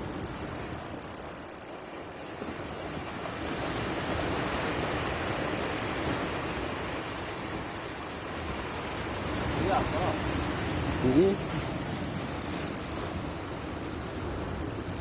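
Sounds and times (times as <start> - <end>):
sea surf rushing: 2.3 - 15.0.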